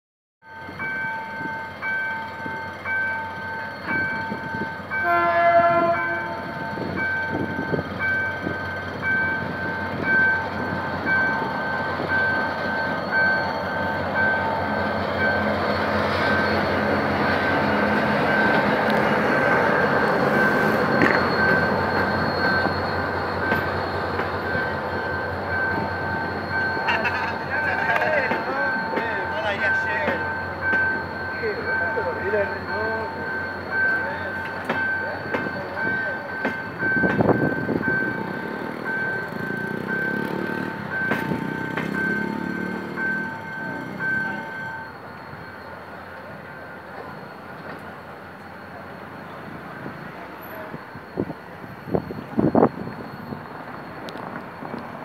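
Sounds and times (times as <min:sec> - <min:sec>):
diesel locomotive engine: 0:00.4 - 0:55.0
level-crossing warning signal: 0:00.4 - 0:55.0
train wheels on rails: 0:00.5 - 0:55.0
train horn blast: 0:05.0 - 0:06.5.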